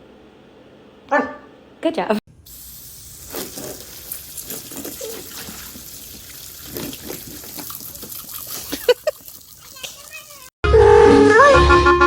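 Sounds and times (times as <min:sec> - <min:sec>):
water running from tap: 0:02.4 - 0:10.5.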